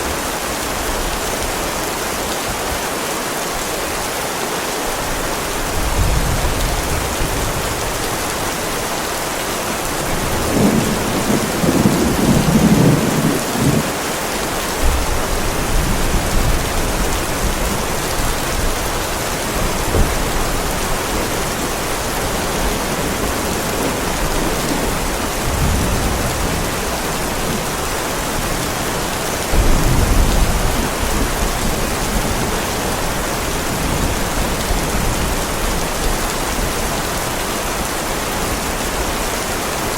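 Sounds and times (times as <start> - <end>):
heavy rain pouring: 0.0 - 39.9
thunder rumbling: 10.1 - 36.9.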